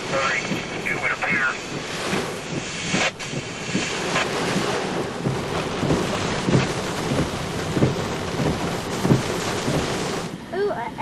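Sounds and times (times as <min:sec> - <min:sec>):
low rumbles and thuds: 0:00.0 - 0:10.6
rain: 0:00.0 - 0:11.0
wind: 0:00.0 - 0:11.0.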